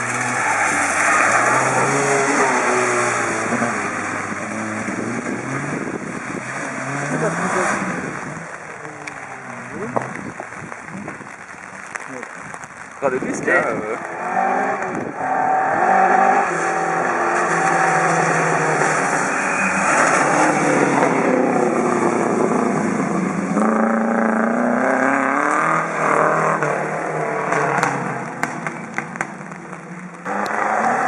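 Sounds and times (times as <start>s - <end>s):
rally car engine passing: 0.0s - 10.1s, 30.2s - 31.0s.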